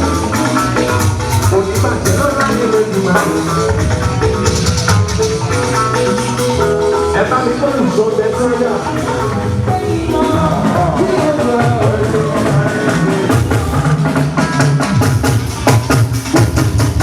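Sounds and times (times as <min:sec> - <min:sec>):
music with singing: 0:00.0 - 0:17.0.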